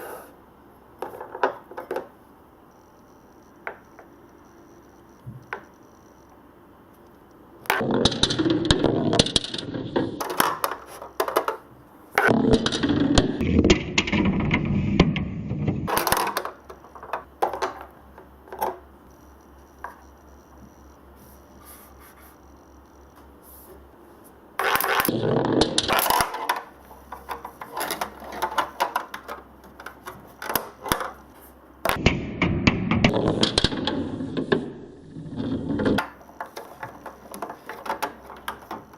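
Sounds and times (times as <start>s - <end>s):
balls rattling down marble run: 7.7s - 11.6s, 12.2s - 17.9s, 24.6s - 31.2s, 31.9s - 38.9s.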